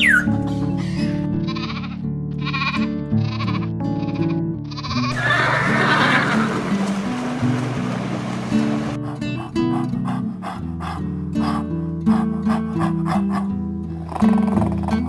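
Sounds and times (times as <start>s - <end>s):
background music: 0.0s - 15.0s
farm animal bleating: 1.4s - 3.6s, 4.8s - 6.6s.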